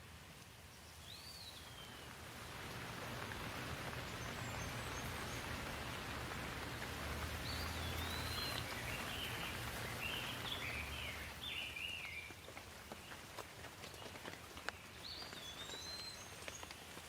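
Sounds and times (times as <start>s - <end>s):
rain patter: 0.0s - 17.0s
bird chirping: 2.9s - 13.2s, 14.7s - 16.8s.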